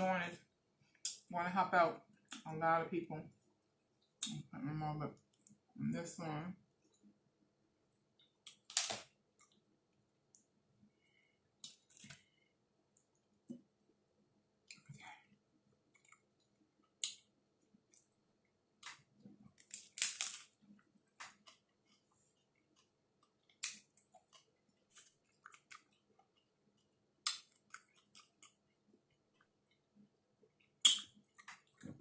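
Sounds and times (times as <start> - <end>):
crisp bites and chewing: 18.8 - 21.7.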